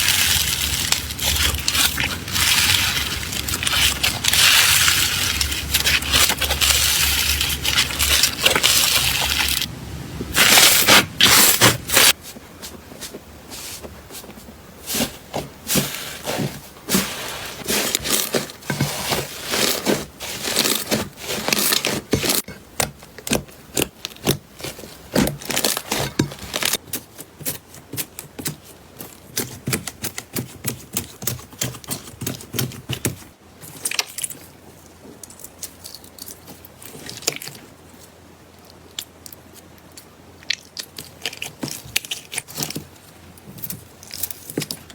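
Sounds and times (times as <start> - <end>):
slime crackling and popping: 0.0 - 9.7.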